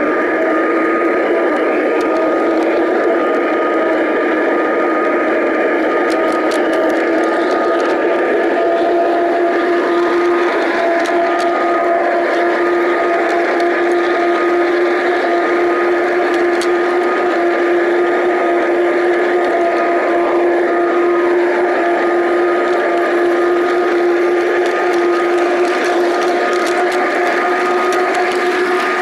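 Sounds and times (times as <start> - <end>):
model train motor hum: 0.0 - 29.0
wheels rumbling on track: 5.8 - 29.0.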